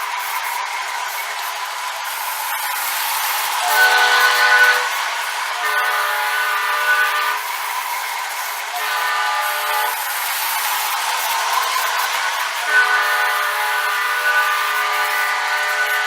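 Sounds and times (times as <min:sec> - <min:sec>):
model train running noise: 0:00.0 - 0:16.0
model locomotive air horn: 0:03.6 - 0:07.9, 0:08.6 - 0:10.9, 0:11.7 - 0:16.0.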